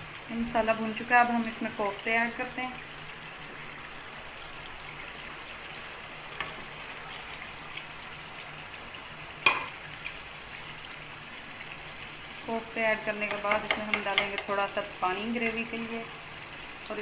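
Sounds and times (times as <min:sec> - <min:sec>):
spices sizzling in oil: 0:00.0 - 0:17.0
knock against the pan: 0:09.4 - 0:09.8, 0:13.3 - 0:14.5
spatula stirring in pan: 0:13.1 - 0:14.7.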